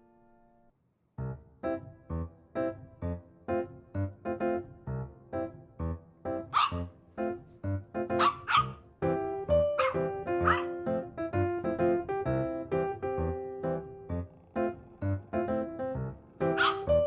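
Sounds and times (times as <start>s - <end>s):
bouncy piano music: 1.2s - 17.0s
dog barking in short yaps: 6.6s - 6.8s, 8.2s - 8.8s, 9.8s - 10.7s, 16.6s - 16.8s.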